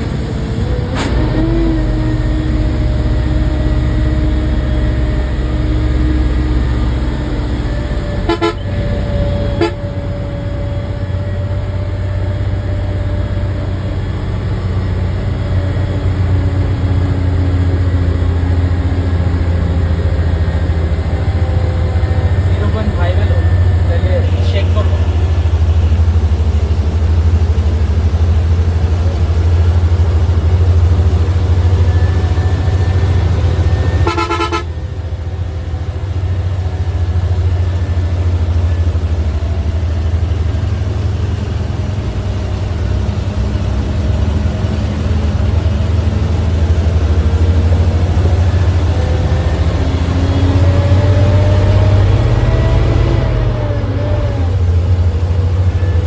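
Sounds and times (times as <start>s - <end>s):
bus engine and road rumble: 0.0s - 56.0s
bus horn toot: 8.0s - 10.4s, 31.9s - 35.2s.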